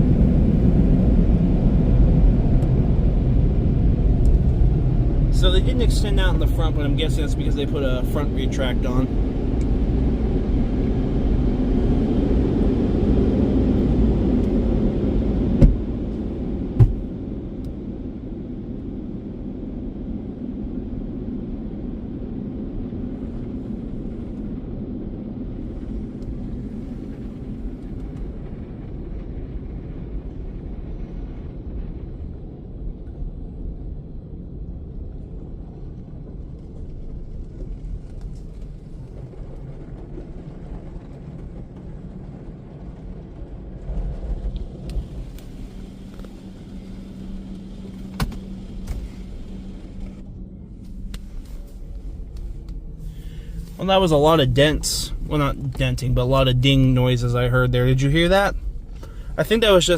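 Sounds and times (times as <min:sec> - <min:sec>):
car wash equipment washing: 0:00.0 - 0:30.9, 0:35.6 - 0:59.9
sharp knocks against car: 0:15.6 - 0:15.9, 0:16.8 - 0:17.0, 0:48.1 - 0:49.0.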